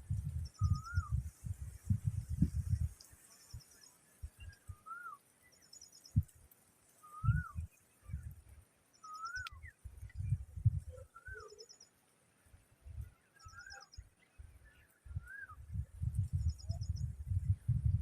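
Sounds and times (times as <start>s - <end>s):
bird whistled calls: 0.6s - 1.2s, 4.4s - 5.2s, 7.0s - 7.7s, 9.0s - 9.8s, 10.9s - 11.8s, 13.4s - 14.0s, 15.1s - 15.7s
high ticks: 9.0s - 10.2s.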